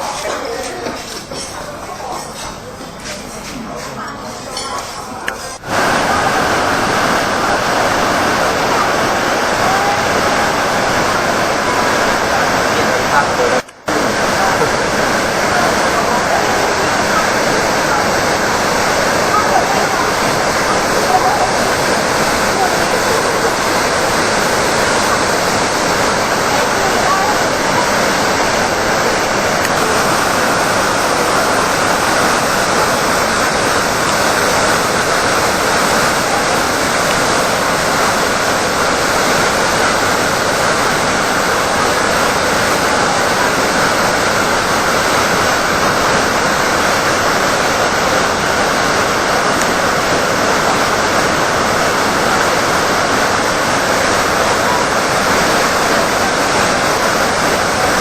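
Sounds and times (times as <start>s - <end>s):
loud rush of waterfall: 5.6s - 58.0s.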